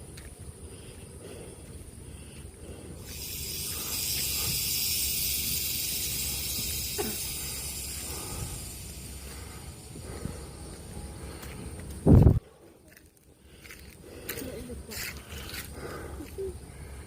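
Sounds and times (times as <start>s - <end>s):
loud hiss: 2.8s - 11.2s.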